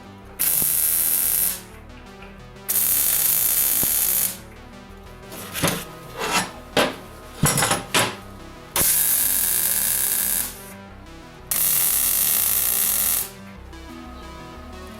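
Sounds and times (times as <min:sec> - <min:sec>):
power tool running: 0:00.4 - 0:01.6, 0:02.7 - 0:04.4, 0:05.4 - 0:10.7, 0:11.5 - 0:13.4
metal filing strokes: 0:05.4 - 0:08.2.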